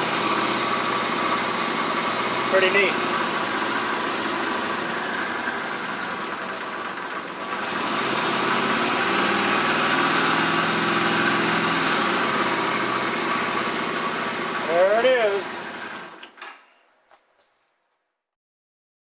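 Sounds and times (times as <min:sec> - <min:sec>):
motorcycle engine idling: 0:00.0 - 0:10.0, 0:12.2 - 0:15.9.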